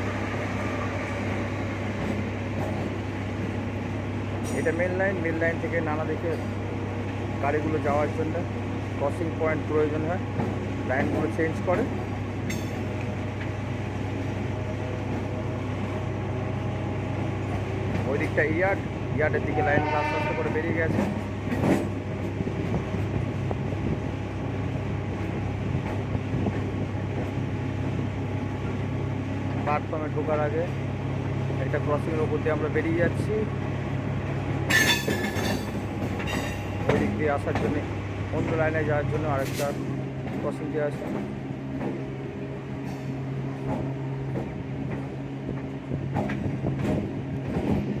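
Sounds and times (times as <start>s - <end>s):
train rumbling: 0.0s - 48.0s
train wheels clacking over rail joints: 20.0s - 22.9s, 34.6s - 48.0s.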